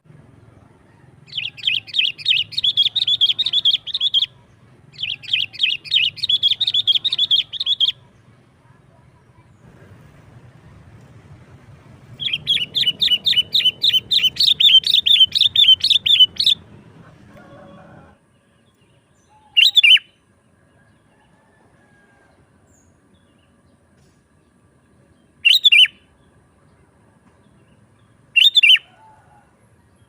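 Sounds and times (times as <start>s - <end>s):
bird chirping rapidly: 1.3s - 8.1s, 12.1s - 16.7s, 19.5s - 20.1s, 25.4s - 26.0s, 28.4s - 28.9s.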